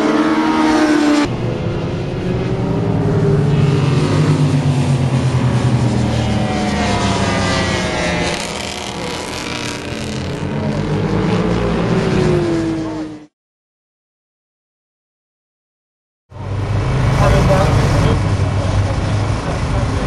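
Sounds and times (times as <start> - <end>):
racing motorcycle engine: 0.0 - 13.3, 16.3 - 20.0
wind and road noise: 0.0 - 13.3, 16.3 - 20.0.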